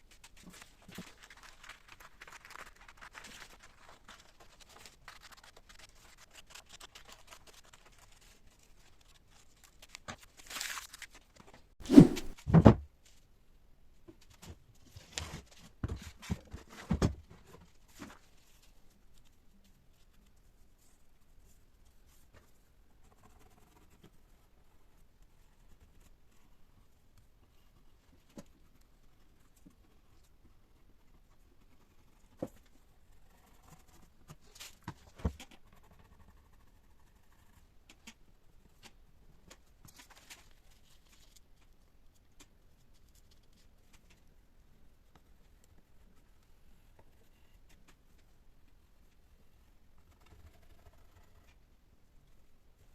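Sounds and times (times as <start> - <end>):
knocks and short scrapes: 11.8 - 12.4.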